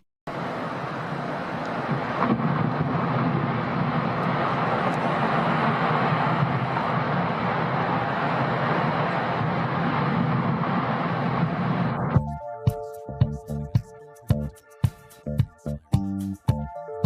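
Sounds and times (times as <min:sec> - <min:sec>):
steady rushing noise: 0:00.3 - 0:17.0
wind buffeting microphone: 0:00.4 - 0:12.3.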